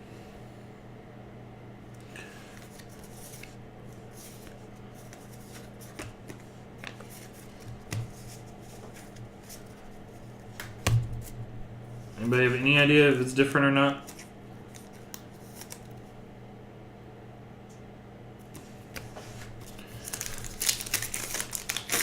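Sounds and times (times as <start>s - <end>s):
low electrical hum: 0.0s - 22.0s
trading cards flipping: 2.5s - 9.9s, 14.0s - 16.0s, 18.5s - 22.0s.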